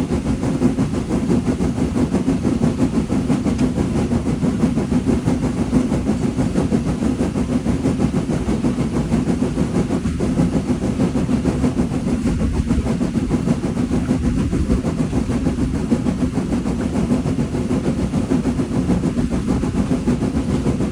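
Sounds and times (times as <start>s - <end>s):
steam locomotive rumbling: 0.0s - 20.9s.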